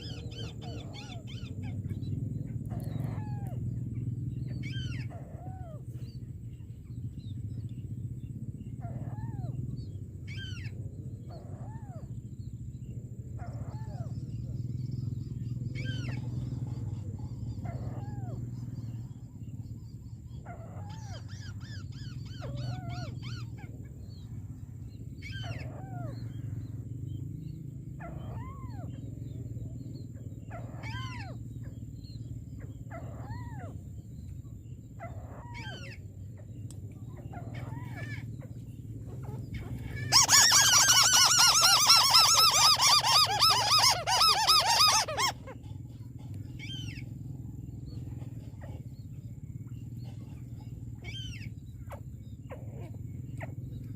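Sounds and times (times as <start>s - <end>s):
bird harsh chattering: 39.2s - 47.1s
bird short rising-falling calls: 39.6s - 45.6s.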